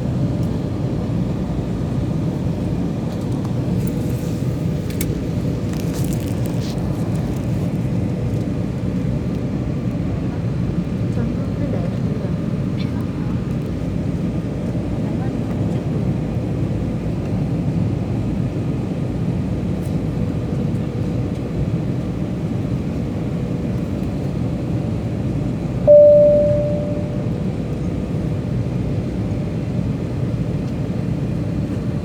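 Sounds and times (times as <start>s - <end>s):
airliner cabin rumble: 0.0s - 13.8s
ringing chime tone: 25.9s - 27.4s
faint steady hum: 25.9s - 27.6s.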